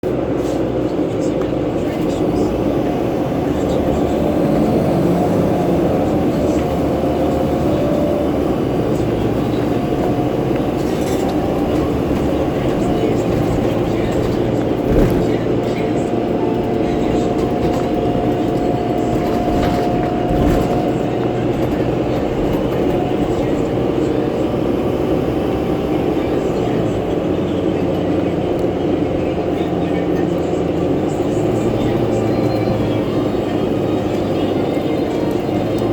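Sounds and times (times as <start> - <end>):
bus cabin drone and rumble: 0.0 - 35.9
bus fan whirring: 0.0 - 35.9.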